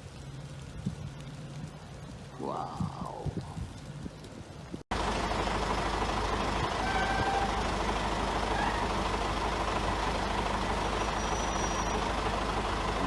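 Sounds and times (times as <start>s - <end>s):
truck engine running: 4.9s - 13.0s.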